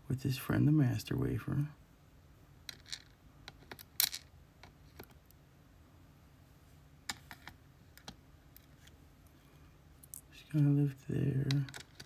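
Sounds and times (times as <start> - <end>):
small lock pins clicking: 11.4 - 12.0.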